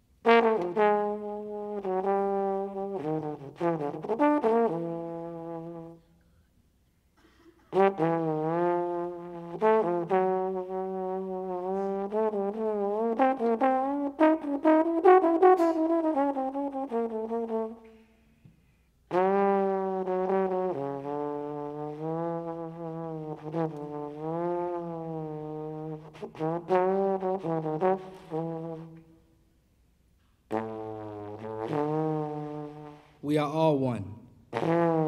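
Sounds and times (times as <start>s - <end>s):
brass instrument playing jazz: 0.2s - 6.0s, 7.7s - 18.0s, 19.1s - 29.3s, 30.5s - 35.0s.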